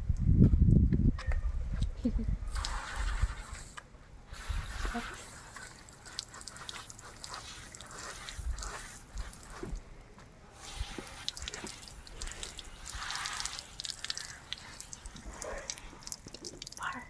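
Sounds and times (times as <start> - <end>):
water dripping and splashing: 4.5 - 17.0.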